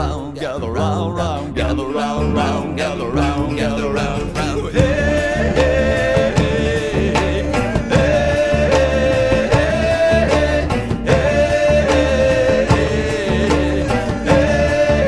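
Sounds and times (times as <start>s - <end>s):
alt-country band music: 0.0s - 15.0s.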